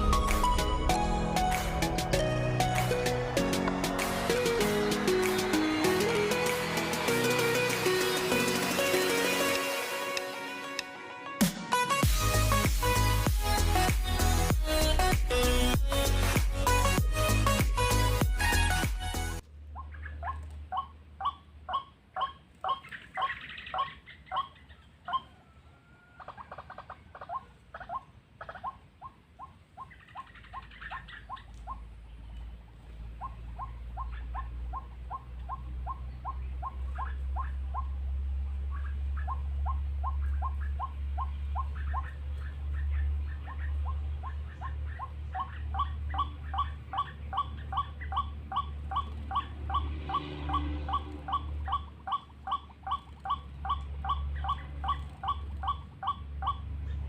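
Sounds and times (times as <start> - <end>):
low steady rumble: 0.0 - 4.5, 19.4 - 57.0.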